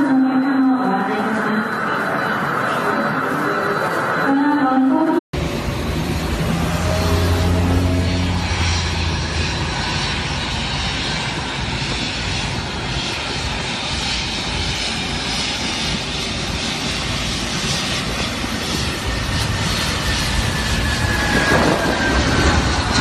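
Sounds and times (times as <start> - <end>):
aircraft engines running: 5.4 - 23.0.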